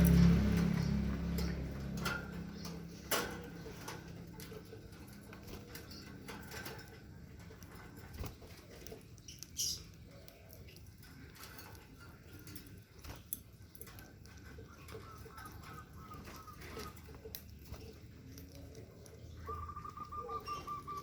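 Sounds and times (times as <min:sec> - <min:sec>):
clicks and knocks around a cage: 0:00.0 - 0:19.3
bird chirp: 0:00.0 - 0:21.0.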